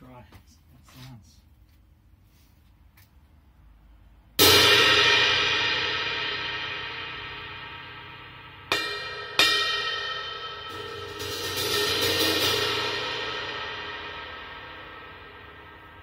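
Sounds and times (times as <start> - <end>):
crash cymbal ringing: 4.4 - 16.0
sharp cymbal strikes: 4.4 - 16.0.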